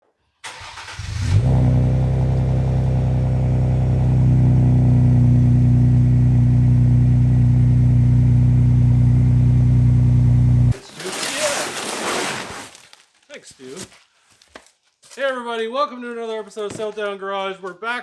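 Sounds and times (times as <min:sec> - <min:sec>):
loud steady car exhaust: 0:01.1 - 0:10.8.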